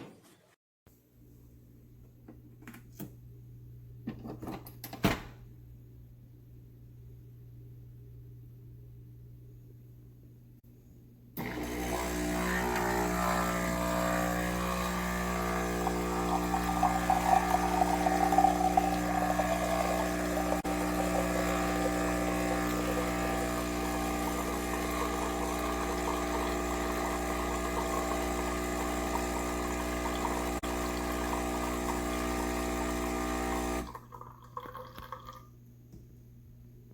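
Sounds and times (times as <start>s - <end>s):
coffee machine pump humming: 11.4s - 35.5s.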